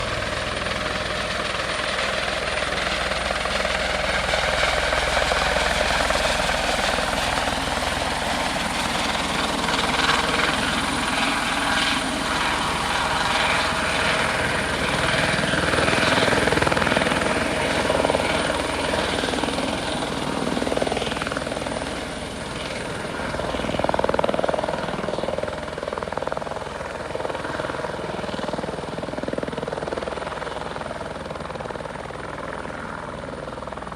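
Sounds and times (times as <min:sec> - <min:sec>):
high turbine whine: 0:00.0 - 0:29.2
helicopter rotors rushing: 0:00.0 - 0:33.9.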